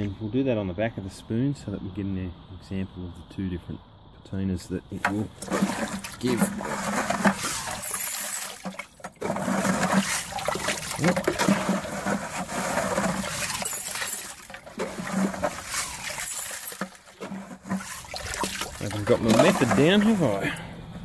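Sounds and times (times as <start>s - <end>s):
water pouring and splashing: 5.0s - 20.6s
gravel rattling on a metal spoon: 9.4s - 17.2s.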